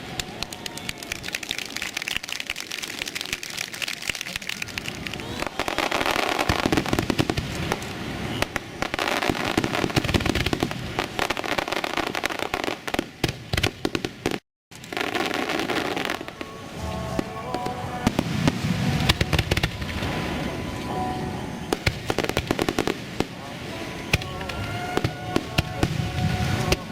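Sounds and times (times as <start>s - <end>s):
fireworks bursting and crackling: 0.0s - 26.9s
music playing: 15.0s - 26.9s.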